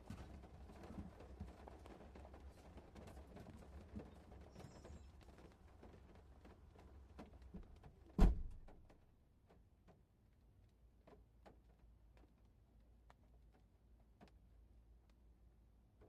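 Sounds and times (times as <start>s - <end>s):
loud thump: 8.2s - 8.6s
faint irregular clicks: 9.5s - 16.0s.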